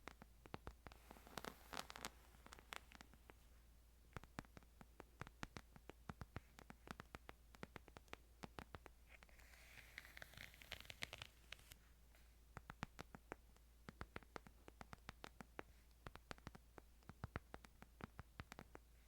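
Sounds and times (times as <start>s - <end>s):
crisp clicks: 0.0s - 3.4s.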